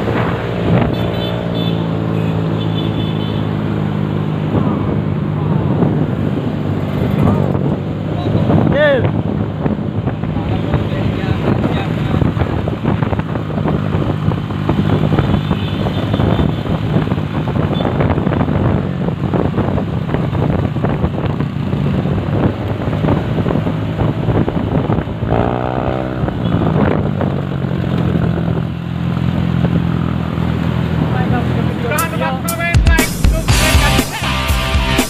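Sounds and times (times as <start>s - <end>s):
noisy rush: 0.0s - 2.6s, 3.4s - 26.3s.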